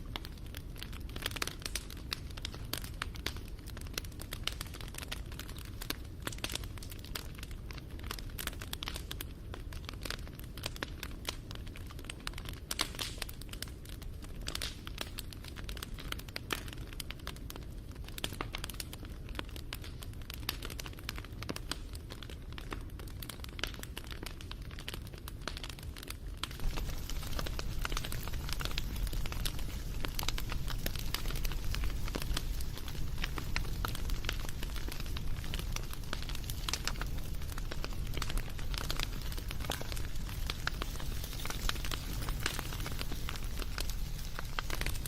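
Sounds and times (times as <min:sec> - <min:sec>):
wood fire crackling: 0:00.0 - 0:45.0.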